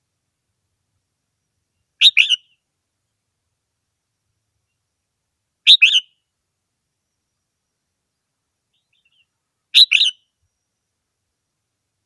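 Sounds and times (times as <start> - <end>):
bulbul singing: 1.4 - 2.6, 5.7 - 6.2, 7.0 - 10.9
faint bird call: 1.4 - 2.6, 5.7 - 6.2, 7.0 - 10.9.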